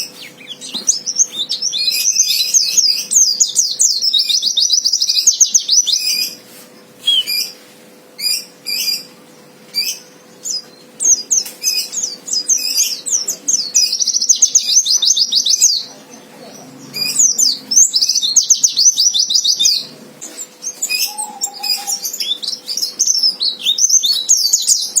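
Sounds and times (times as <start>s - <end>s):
bird twittering song: 0.0s - 25.0s
short bird calls: 7.0s - 7.6s, 16.9s - 25.0s.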